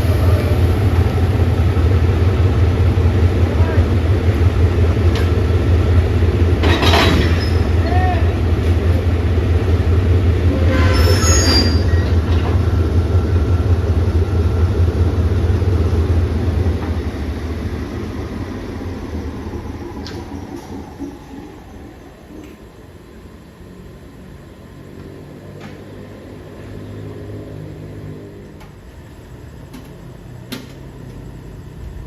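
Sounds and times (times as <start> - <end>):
diesel train rumbling past: 0.0 - 32.0
train wheel squeals: 6.6 - 8.9, 10.4 - 12.8.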